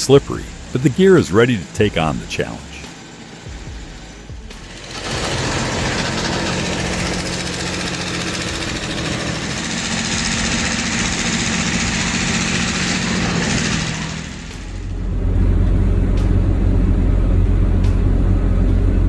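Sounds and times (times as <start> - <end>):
loud hiss: 0.0 - 15.1
heavy vehicle engine running: 0.0 - 19.0.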